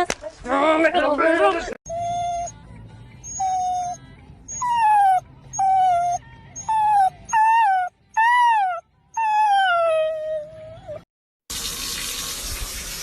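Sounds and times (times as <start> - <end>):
dog whining: 1.9 - 2.6, 3.2 - 11.1.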